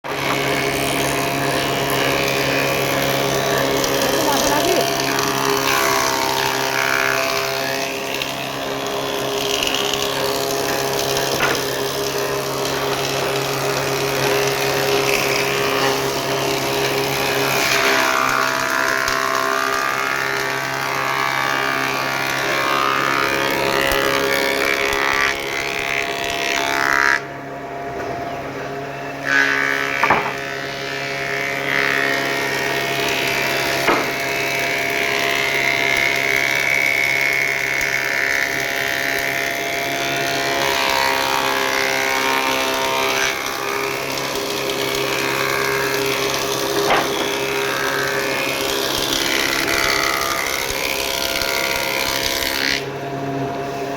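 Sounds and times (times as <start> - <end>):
machine humming: 0.1 - 53.9
sharp knocks: 29.9 - 30.5, 33.8 - 34.2, 46.8 - 47.5.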